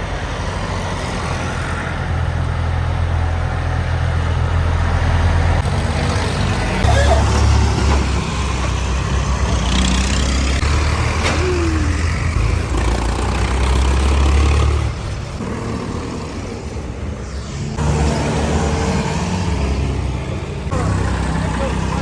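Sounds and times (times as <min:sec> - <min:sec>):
tractor engine rumbling: 0:00.0 - 0:22.0.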